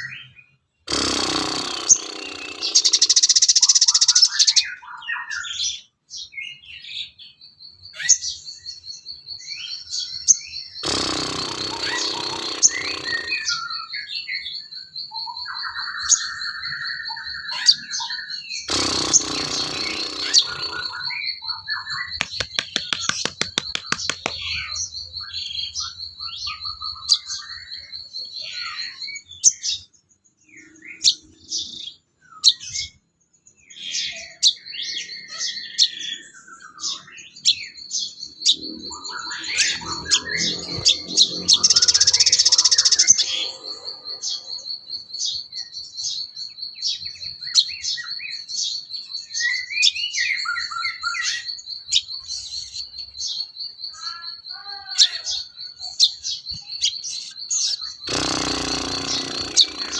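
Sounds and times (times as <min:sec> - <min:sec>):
loud harsh bird call: 0:00.0 - 0:05.6, 0:09.7 - 0:29.8, 0:33.7 - 0:45.7, 0:49.5 - 0:59.9
high pulsing bird trill: 0:10.7 - 0:13.9, 0:18.7 - 0:25.5, 0:38.5 - 0:45.1, 0:57.7 - 0:59.9
rapid clicking ticks: 0:22.2 - 0:24.4, 0:58.1 - 0:59.9.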